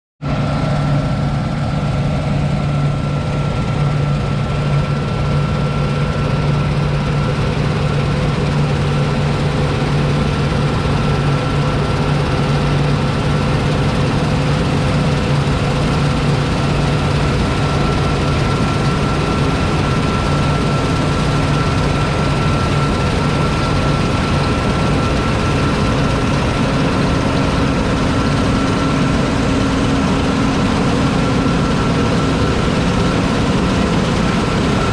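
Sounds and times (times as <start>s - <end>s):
combine harvester diesel running: 0.2s - 34.9s
constant high whine: 0.2s - 34.9s.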